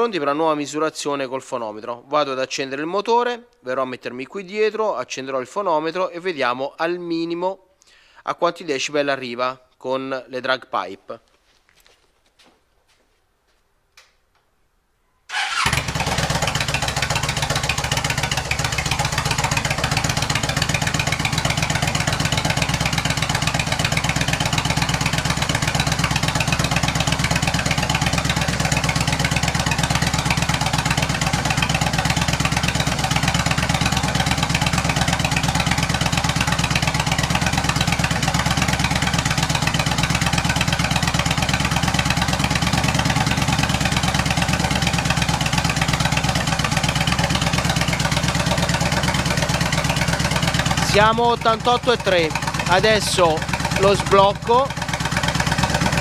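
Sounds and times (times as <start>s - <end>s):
motorcycle engine idling: 15.3s - 56.0s.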